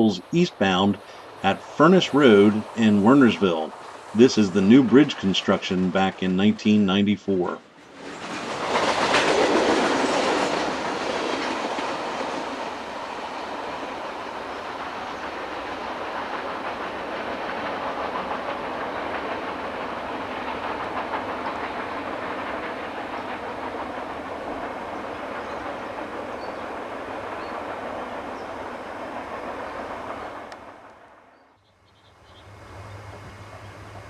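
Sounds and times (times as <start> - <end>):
rumble of passing freight cars: 0.0 - 6.3, 7.6 - 34.0
wheels clicking over rail joints: 7.8 - 31.2.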